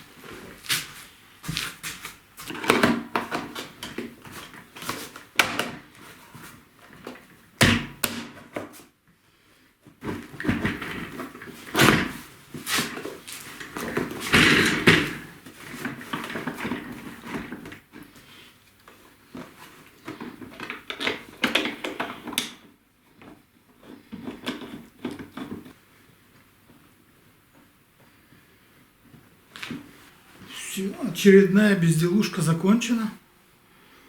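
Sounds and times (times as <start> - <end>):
knocks and clatter of chair parts: 1.5 - 8.9, 9.9 - 18.1, 19.3 - 25.8.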